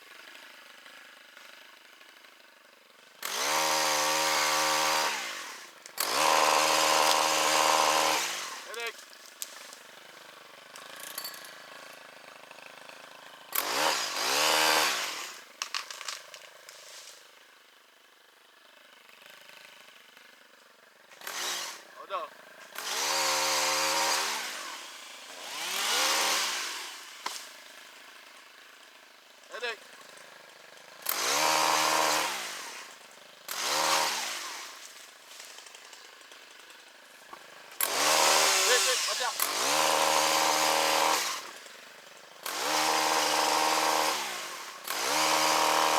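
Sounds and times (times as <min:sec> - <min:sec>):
chainsaw revving: 0:00.1 - 0:45.9
sharp cracks or knocks: 0:15.6 - 0:16.5.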